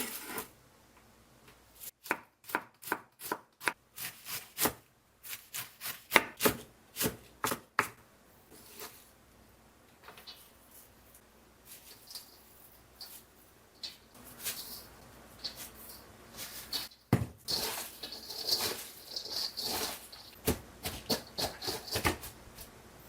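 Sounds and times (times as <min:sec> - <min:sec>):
rustling and handling noises: 0:08.4 - 0:23.0.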